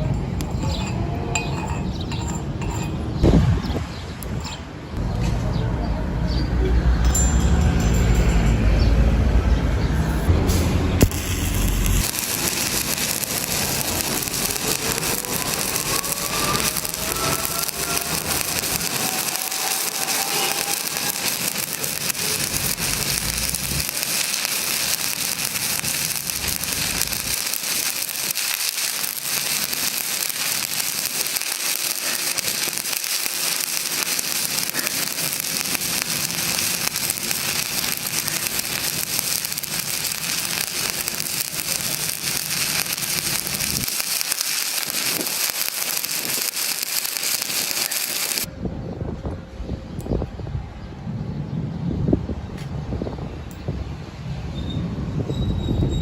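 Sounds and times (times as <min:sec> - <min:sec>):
arc welding crackling sizzle: 0:11.0 - 0:48.5.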